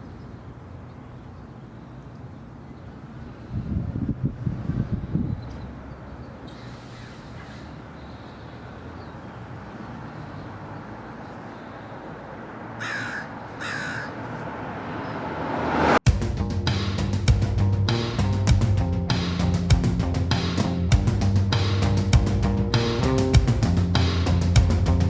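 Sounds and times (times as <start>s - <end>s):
crow cawing: 12.7s - 14.4s
rising rush of noise: 14.0s - 17.3s.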